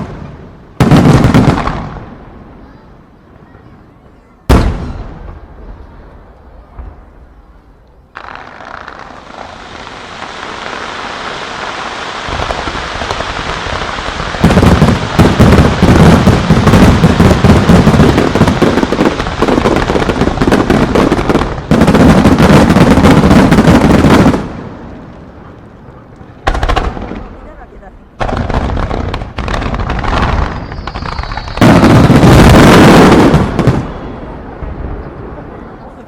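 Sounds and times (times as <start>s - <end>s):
fireworks bursting and crackling: 0.0s - 2.6s, 4.5s - 36.0s.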